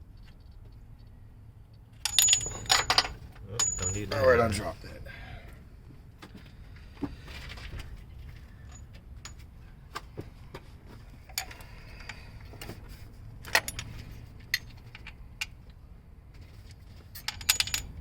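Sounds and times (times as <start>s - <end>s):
low steady hum: 0.0s - 18.0s
metallic clicks of tools and bolts: 2.0s - 4.4s, 13.4s - 15.7s, 16.7s - 18.0s.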